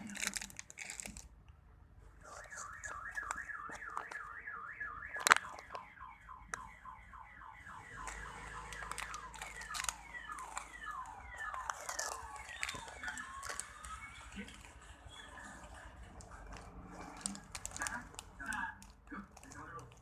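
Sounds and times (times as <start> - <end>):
light clicks and handling noise: 2.2 - 5.9
electronic siren-like alarm: 2.2 - 17.5.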